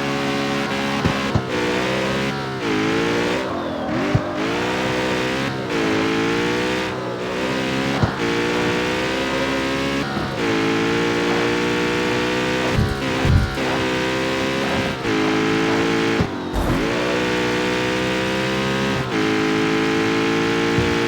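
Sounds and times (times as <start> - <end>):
car engine running under load: 0.0 - 21.0
exhaust pops and crackles: 9.4 - 19.1.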